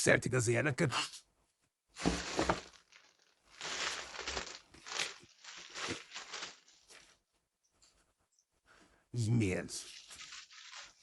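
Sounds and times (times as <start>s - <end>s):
crinkly packaging rustling: 2.0s - 7.2s, 9.9s - 11.0s.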